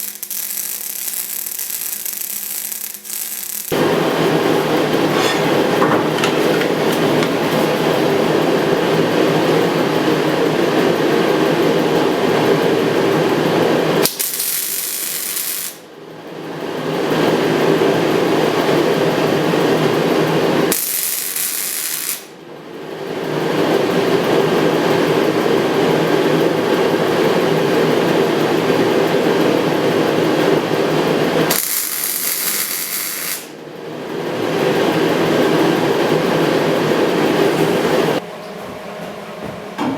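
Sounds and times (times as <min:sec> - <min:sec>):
power tool on steel: 0:00.0 - 0:08.1, 0:31.5 - 0:33.6.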